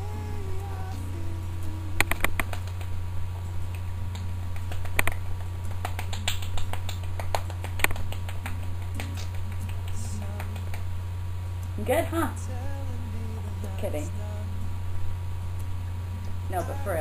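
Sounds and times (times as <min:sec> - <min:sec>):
low electrical hum: 0:00.0 - 0:17.0
sharp clicks and taps: 0:03.7 - 0:10.8.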